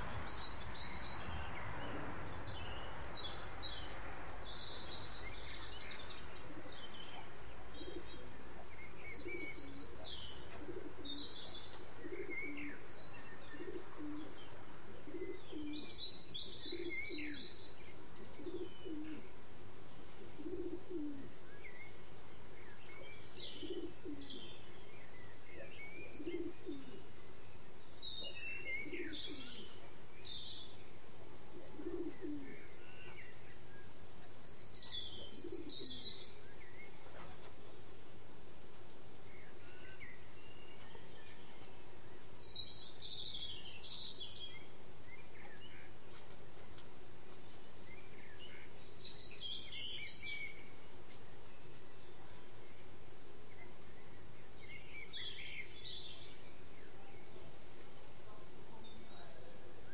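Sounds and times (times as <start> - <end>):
bird chirps and tweets: 0.0 - 38.2, 38.9 - 59.9
bird cooing: 4.6 - 19.4, 20.1 - 22.0, 22.6 - 27.3, 28.0 - 37.8.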